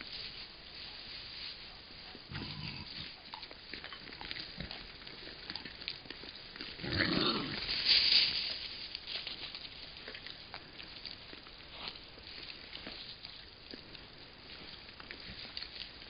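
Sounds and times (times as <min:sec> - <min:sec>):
acorns being chewed: 0:01.8 - 0:16.0
boar grunting: 0:02.3 - 0:03.2, 0:06.6 - 0:07.7.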